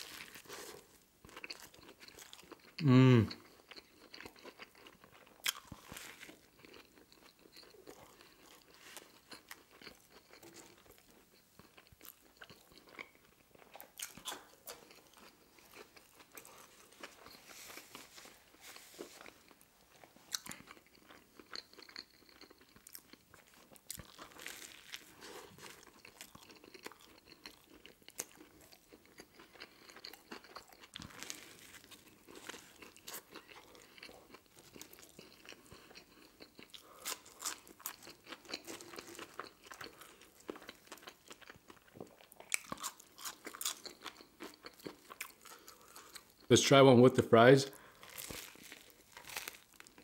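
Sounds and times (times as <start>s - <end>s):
chewing: 0.0s - 46.5s, 47.8s - 50.0s
crunching bites into toasted roll: 48.0s - 50.0s.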